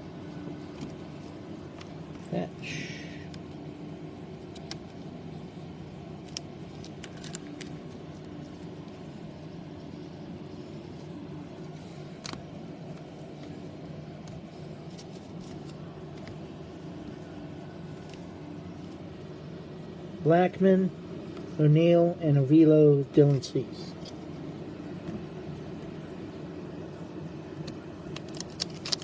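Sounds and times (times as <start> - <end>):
low background hum: 0.0 - 29.0
cards and plastic sleeves rustling: 0.3 - 2.5, 6.2 - 9.2, 10.5 - 19.3, 27.6 - 29.0.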